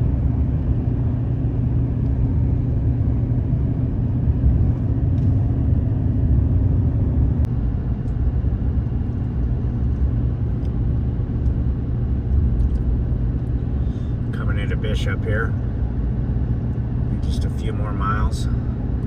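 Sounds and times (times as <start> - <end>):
vehicle engine drone: 0.0 - 19.0.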